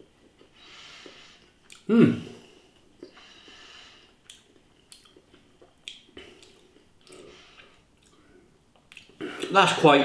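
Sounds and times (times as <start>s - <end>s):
man chewing: 0.0s - 9.5s
wet mouth clicks: 1.6s - 1.9s, 4.2s - 7.3s, 8.8s - 9.5s.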